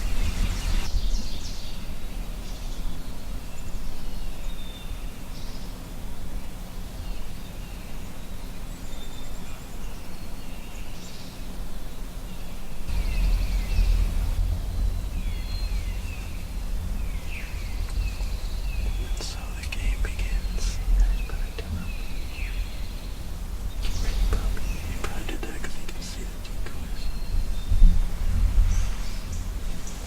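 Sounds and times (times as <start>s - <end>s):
songbirds chirping: 0.0s - 30.0s
low outdoor rumble: 11.5s - 30.0s.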